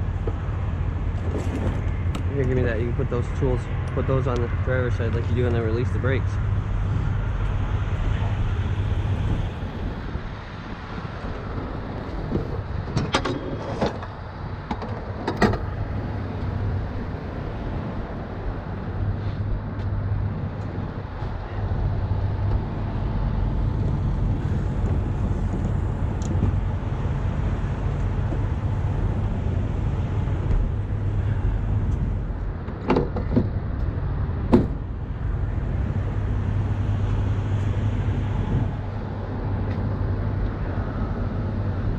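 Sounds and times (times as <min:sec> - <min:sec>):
diesel truck engine idling: 0:17.8 - 0:41.9.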